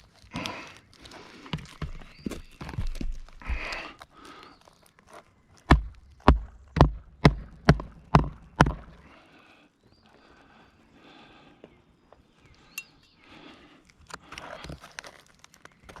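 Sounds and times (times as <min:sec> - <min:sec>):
shingle rustling: 0:00.0 - 0:06.8, 0:13.4 - 0:16.0
hatchet hammering nails: 0:05.7 - 0:09.0.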